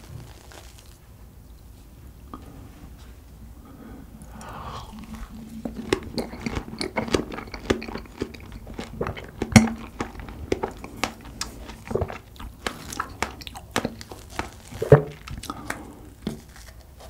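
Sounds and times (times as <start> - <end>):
chewing clicks and smacks: 4.4 - 16.7.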